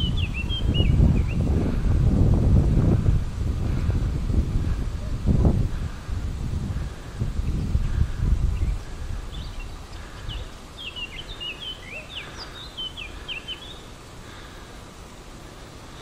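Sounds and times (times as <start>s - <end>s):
songbird chirping: 0.0s - 1.6s, 6.8s - 16.0s.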